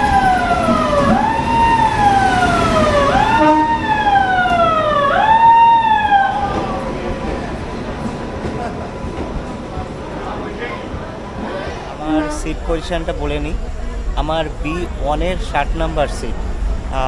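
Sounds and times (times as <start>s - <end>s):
siren wailing: 0.0s - 6.9s.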